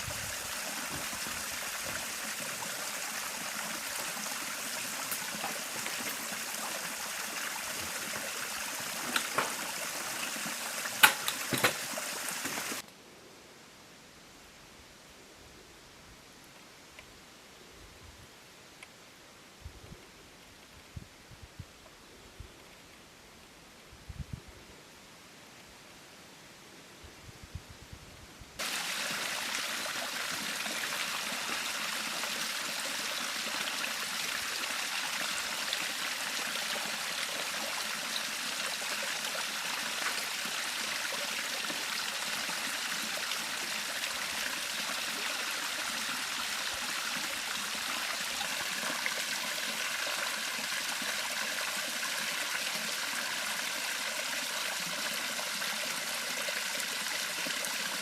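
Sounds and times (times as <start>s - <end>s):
river flowing: 0.0s - 12.8s, 28.6s - 58.0s.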